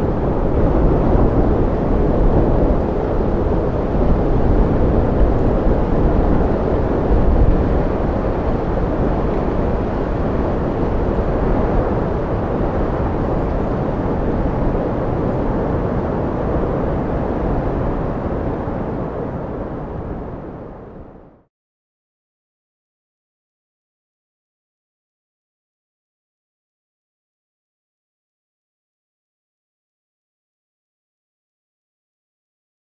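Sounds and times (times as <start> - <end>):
strong wind blowing: 0.0 - 21.5.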